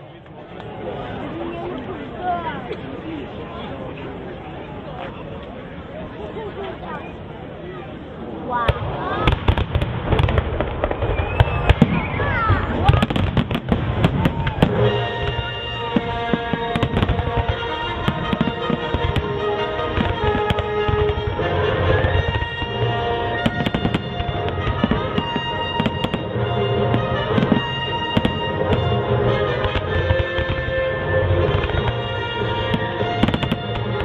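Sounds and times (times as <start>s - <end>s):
fireworks bursting: 8.6s - 34.0s
music playing: 14.6s - 34.0s.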